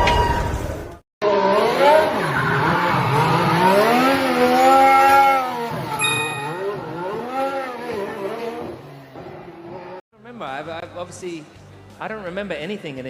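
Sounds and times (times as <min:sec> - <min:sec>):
racing car engine revving: 0:01.2 - 0:10.0.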